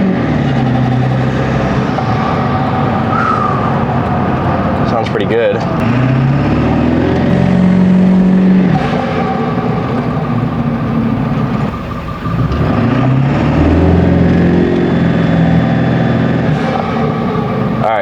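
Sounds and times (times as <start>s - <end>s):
diesel truck engine accelerating: 0.0s - 18.0s.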